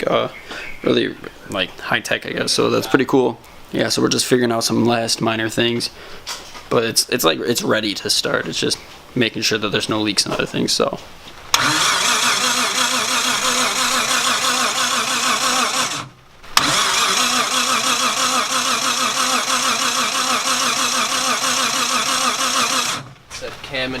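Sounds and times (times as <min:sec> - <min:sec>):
engine cranking on starter: 0:11.5 - 0:24.0.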